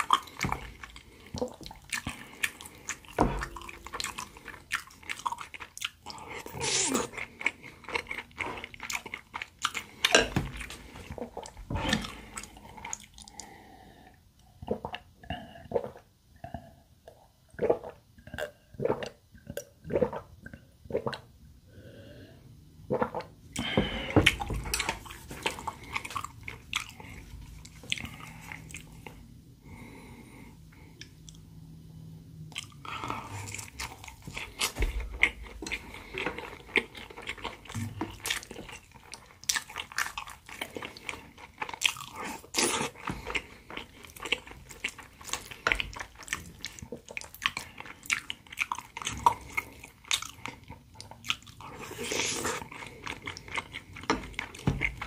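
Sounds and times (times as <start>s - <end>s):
crunchy chewing: 32.6s - 55.0s.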